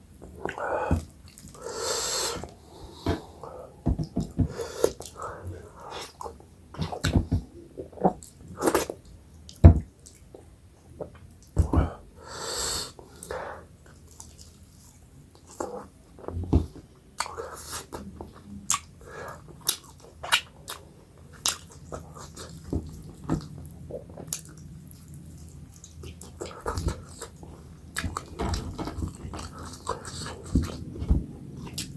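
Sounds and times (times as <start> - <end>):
person chewing with mouth smacks: 17.2 - 31.9.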